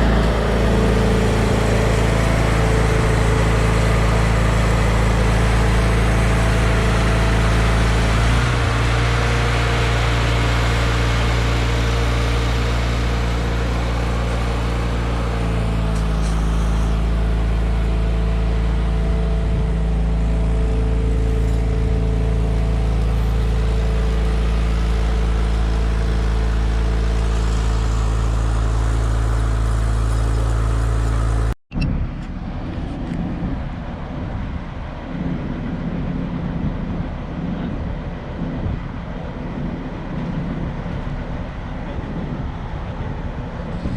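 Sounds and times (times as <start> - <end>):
large engine droning: 0.0 - 43.9.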